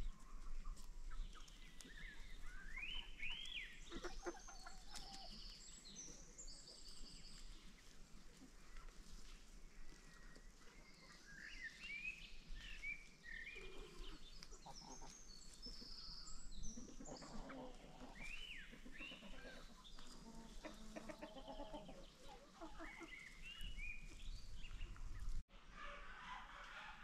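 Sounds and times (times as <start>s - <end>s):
birds chirping and whistling: 1.4s - 7.5s, 22.8s - 25.3s.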